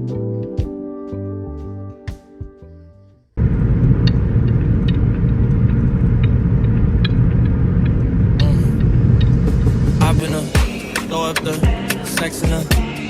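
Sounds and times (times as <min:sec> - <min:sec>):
vehicle rumbling in motion: 0:03.4 - 0:13.0.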